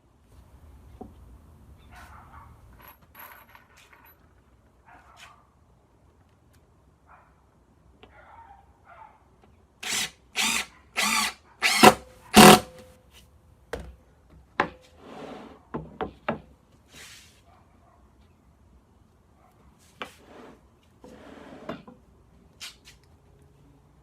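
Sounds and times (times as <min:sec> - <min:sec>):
impact driver driving screw: 0:09.8 - 0:12.8.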